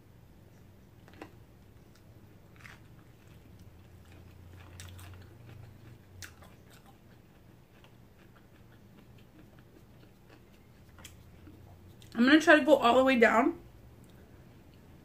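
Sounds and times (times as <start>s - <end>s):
chewing food: 0.5s - 12.2s.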